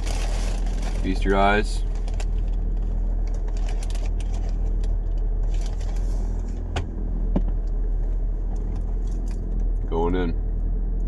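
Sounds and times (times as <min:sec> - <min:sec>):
car engine idling: 0:00.0 - 0:11.0
light rustling: 0:01.8 - 0:09.7.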